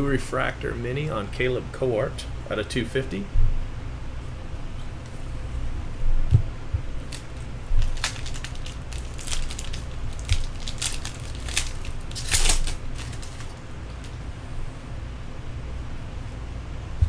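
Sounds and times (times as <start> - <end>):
foil wrappers crinkling: 7.0 - 14.2.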